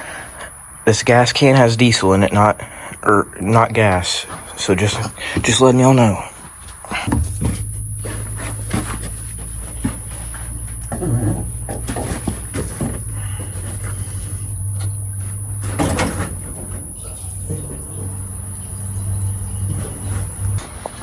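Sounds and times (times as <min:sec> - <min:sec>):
tractor diesel engine idling: 0:03.8 - 0:20.6
knocks and clanks: 0:06.4 - 0:20.7.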